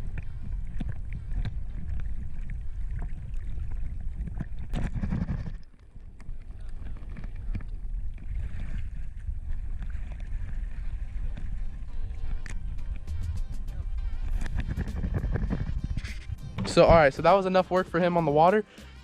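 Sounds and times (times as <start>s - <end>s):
wind buffeting microphone: 0.0s - 17.4s.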